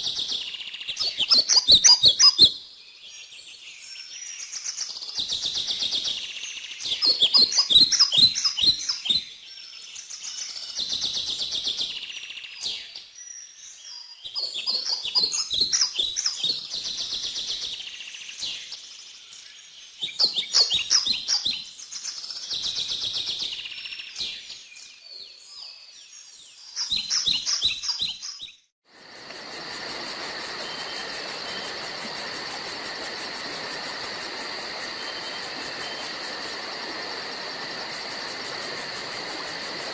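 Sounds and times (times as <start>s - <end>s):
pulsing insect trill: 28.9s - 39.9s.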